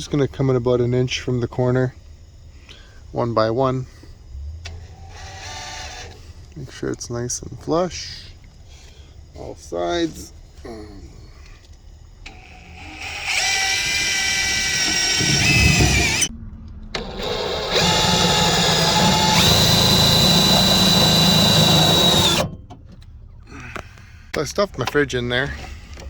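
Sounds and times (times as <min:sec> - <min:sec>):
power drill whining: 0:04.7 - 0:06.4, 0:11.6 - 0:16.3, 0:17.0 - 0:22.5.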